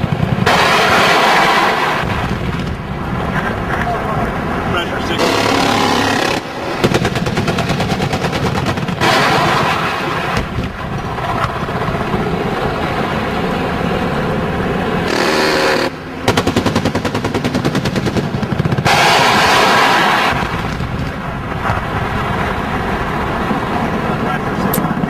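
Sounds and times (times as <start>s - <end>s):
helicopter chain gun firing: 5.2s - 10.6s, 15.1s - 20.9s
helicopter engine and rotor: 10.6s - 18.9s, 23.9s - 25.0s.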